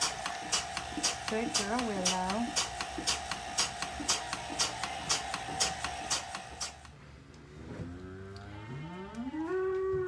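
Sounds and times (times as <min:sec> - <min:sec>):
milking machine humming: 0:00.0 - 0:06.9
pulsator clicking: 0:00.0 - 0:07.0
cow mooing: 0:08.0 - 0:10.0.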